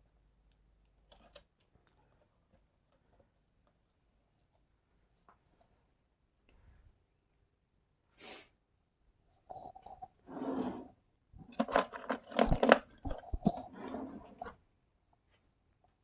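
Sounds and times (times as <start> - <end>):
small parts clicking and clinking: 0.5 - 2.0, 11.5 - 13.6.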